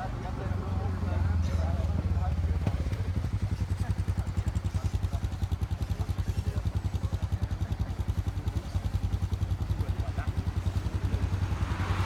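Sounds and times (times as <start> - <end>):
engine idling: 0.2 - 12.0.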